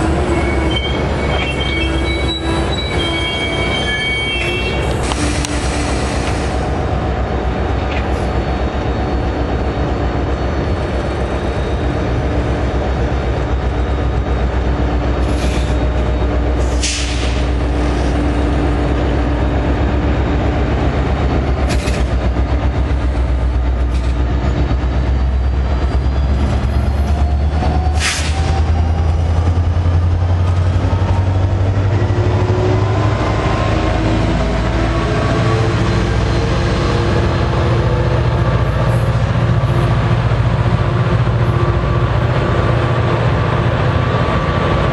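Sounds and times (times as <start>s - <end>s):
high-pitched wheel squeals: 0.0s - 5.5s
train rumbling past: 0.0s - 44.9s.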